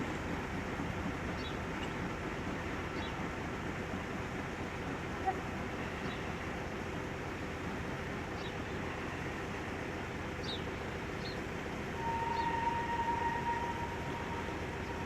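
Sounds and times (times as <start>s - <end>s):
steam train rumbling on rails: 0.0s - 15.0s
steam train whistle: 12.0s - 15.0s.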